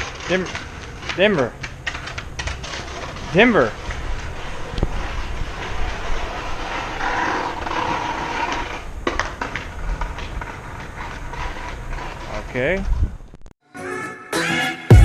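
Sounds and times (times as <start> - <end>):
skateboard clacks: 0.0 - 4.0, 4.7 - 12.5
skateboard wheels rolling on concrete: 0.0 - 13.5.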